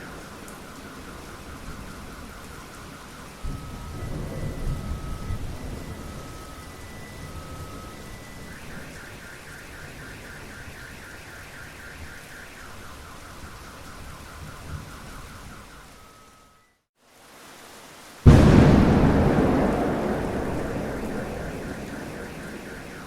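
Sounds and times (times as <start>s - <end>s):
steady rain: 0.0s - 23.0s
low rumble of thunder: 3.3s - 8.4s, 18.3s - 23.0s.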